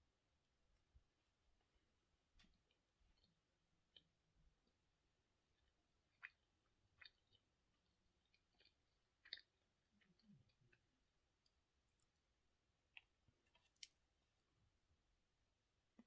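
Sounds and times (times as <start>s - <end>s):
person eating quietly: 5.4s - 12.2s.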